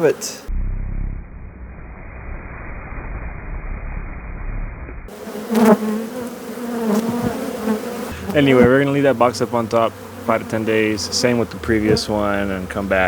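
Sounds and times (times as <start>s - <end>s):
honeybees buzzing: 0.0s - 0.5s, 5.1s - 13.0s
muffled low rumble: 0.5s - 5.1s.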